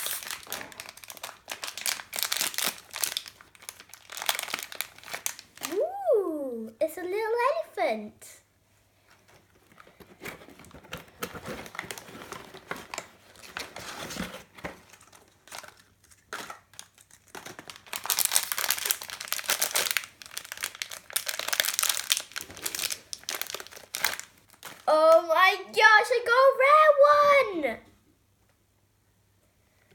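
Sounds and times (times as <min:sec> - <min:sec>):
wrapper crinkling and tearing: 0:00.0 - 0:05.9, 0:09.3 - 0:24.9.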